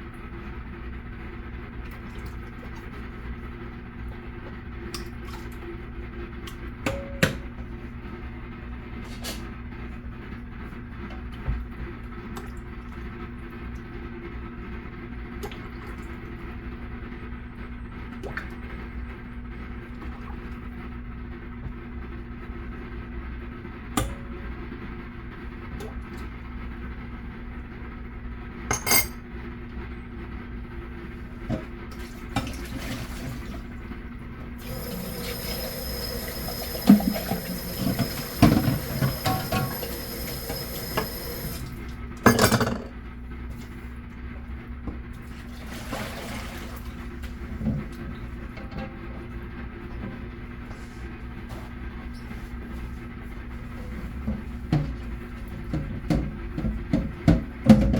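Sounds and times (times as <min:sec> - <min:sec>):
dishes clinking: 0:28.7 - 0:29.2, 0:37.9 - 0:41.1, 0:42.3 - 0:42.9
kitchen appliance humming: 0:28.7 - 0:57.9.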